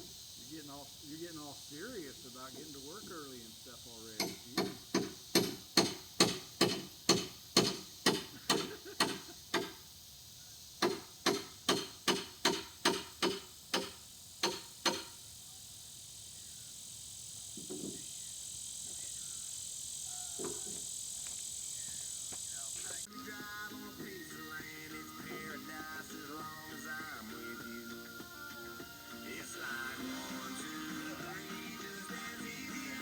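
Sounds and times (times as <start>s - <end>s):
insects chirring: 0.0s - 33.0s
hammer blows: 4.2s - 9.8s, 10.8s - 15.2s.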